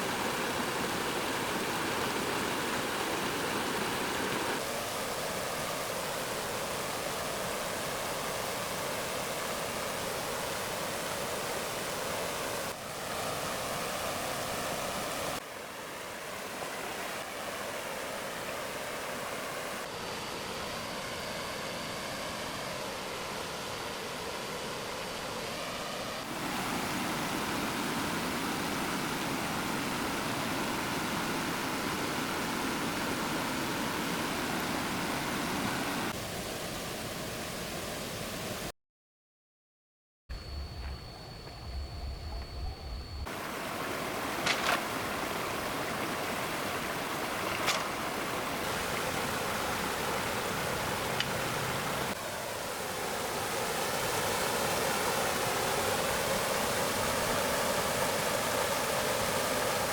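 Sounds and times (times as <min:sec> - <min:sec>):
stream water flowing: 0:00.0 - 0:38.7, 0:43.3 - 0:59.9.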